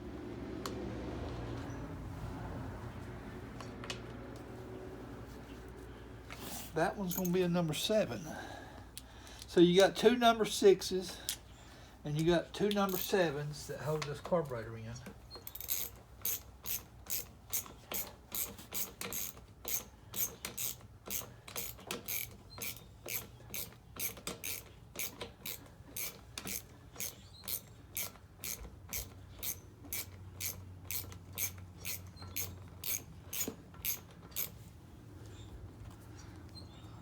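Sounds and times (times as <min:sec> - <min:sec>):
socket ratchet clicking: 0:12.7 - 0:13.1, 0:15.4 - 0:34.6.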